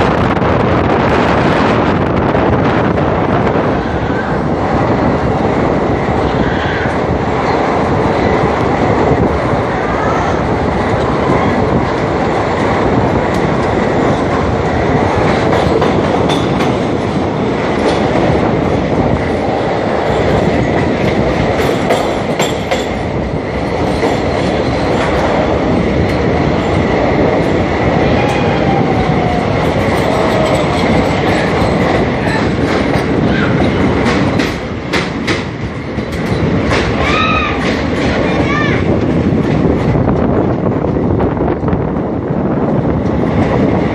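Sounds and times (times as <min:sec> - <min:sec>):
train rumbling on rails: 0:00.0 - 0:43.9.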